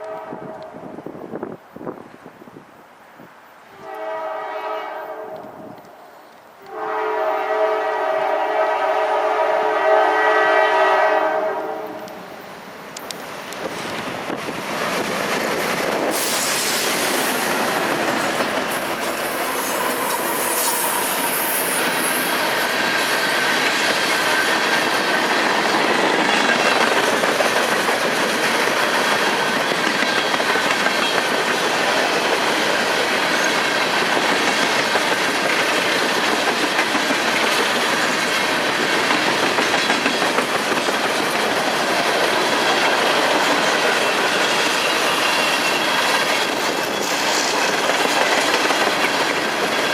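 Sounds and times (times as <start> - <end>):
train wheels clicking over rail joints: 12.8 - 49.9
high squeal of wheels on rail: 16.0 - 27.4, 28.2 - 35.8, 42.3 - 49.9.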